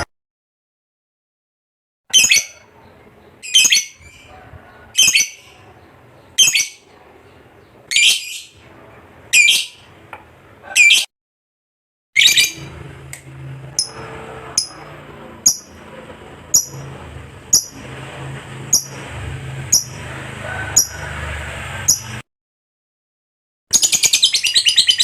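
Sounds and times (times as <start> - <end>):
lovebird chattering and chirping: 2.1 - 6.8, 7.6 - 8.6, 9.3 - 9.8, 10.8 - 11.1, 12.2 - 12.7, 13.8 - 14.8, 15.4 - 15.8, 16.5 - 16.8, 17.5 - 17.9, 18.7 - 19.0, 19.7 - 20.0, 21.9 - 22.2, 23.7 - 25.0.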